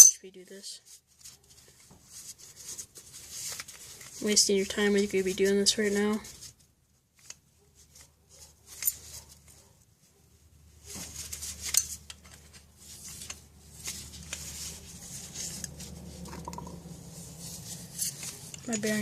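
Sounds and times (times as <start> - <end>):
metal parts clicking and clinking: 0.0 - 0.2, 8.7 - 9.2, 11.2 - 14.5, 17.9 - 19.0.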